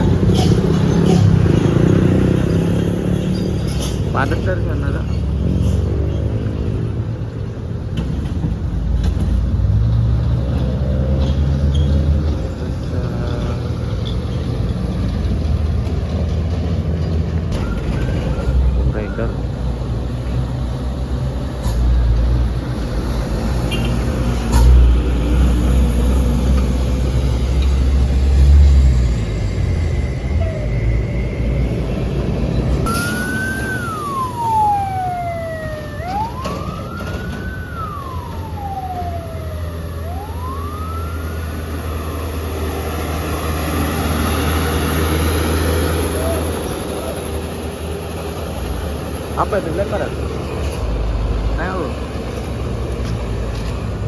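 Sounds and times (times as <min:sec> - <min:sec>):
diesel truck engine rumbling: 0:00.0 - 0:54.0
siren wailing: 0:28.4 - 0:46.7.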